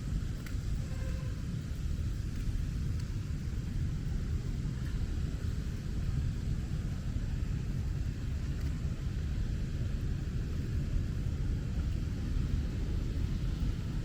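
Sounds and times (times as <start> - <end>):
low rumble: 0.0 - 14.0
rain hiss: 0.0 - 14.0.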